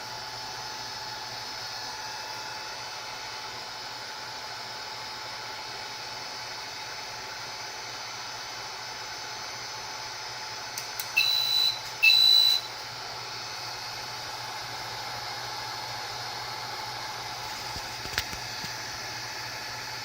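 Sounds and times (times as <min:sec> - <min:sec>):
click: 0:10.8 - 0:11.3
short electronic beeps: 0:11.2 - 0:12.8.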